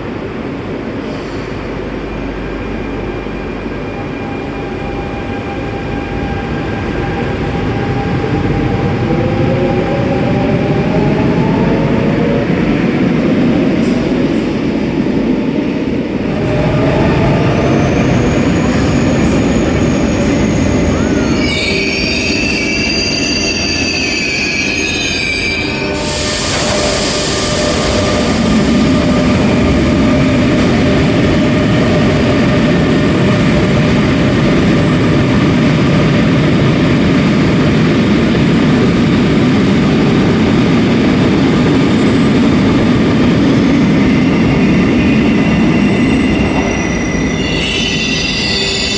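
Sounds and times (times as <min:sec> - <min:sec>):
train rumble: 0:00.0 - 0:48.9
high wheel squeals: 0:17.8 - 0:28.0, 0:45.0 - 0:48.9.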